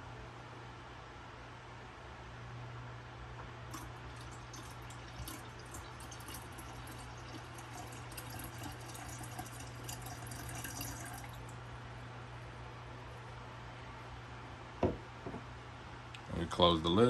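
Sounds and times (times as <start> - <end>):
water pouring into a kettle: 3.7 - 11.6.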